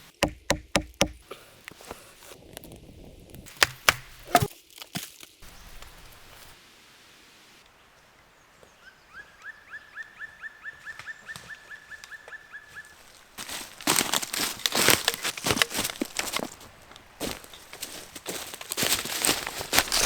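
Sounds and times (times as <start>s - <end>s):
dry leaves and twigs rustling: 0.7s - 6.6s, 10.2s - 20.0s.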